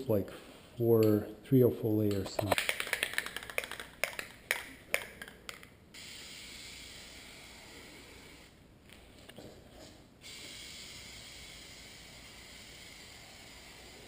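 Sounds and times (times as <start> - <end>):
aerosol can clicks: 2.1 - 5.7
aerosol spraying hiss: 6.0 - 8.6, 10.2 - 14.0.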